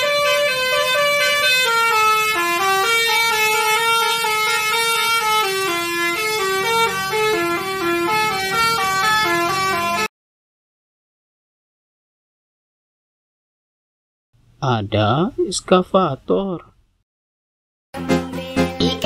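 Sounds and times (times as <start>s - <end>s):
multi-tone bus horn tune: 0.0s - 10.1s.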